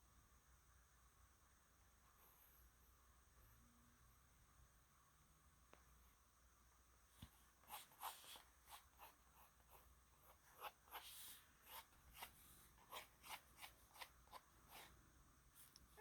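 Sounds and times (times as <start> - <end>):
pencil scratching on paper: 7.6 - 15.0.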